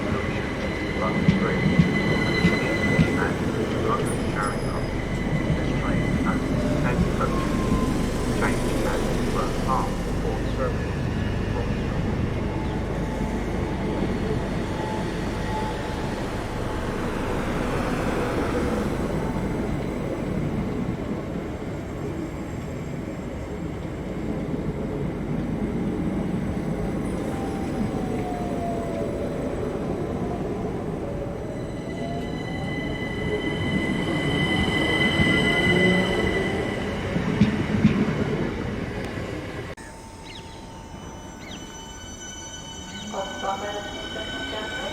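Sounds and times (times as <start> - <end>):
train rumbling past: 0.0 - 44.9.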